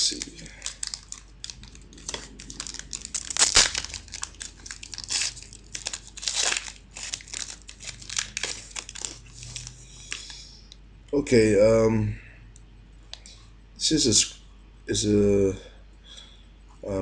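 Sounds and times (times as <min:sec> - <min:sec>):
wrapper tearing and crinkling: 0:00.0 - 0:10.4.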